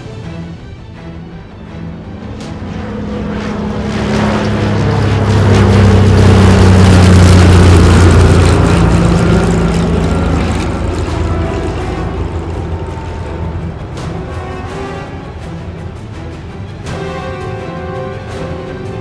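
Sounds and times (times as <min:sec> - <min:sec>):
model plane propeller hum: 0:01.4 - 0:19.0.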